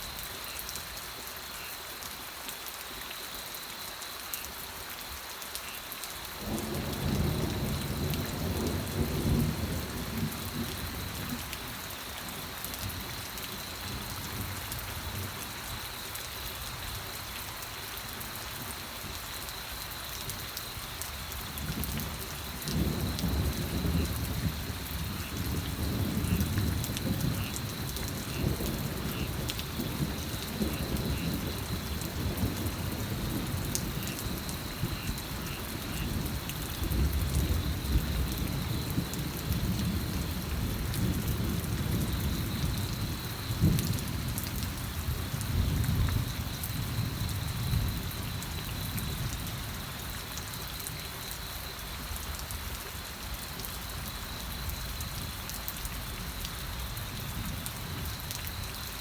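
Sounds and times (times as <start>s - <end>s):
rain pattering: 0.0s - 59.0s
low rolling thunder: 6.4s - 15.4s, 21.4s - 50.2s.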